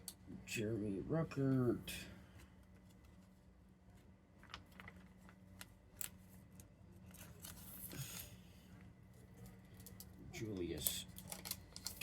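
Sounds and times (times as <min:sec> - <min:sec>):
pages rustling: 0:02.4 - 0:08.3
plastic sleeves clicking and crinkling: 0:02.6 - 0:08.3, 0:09.2 - 0:12.0.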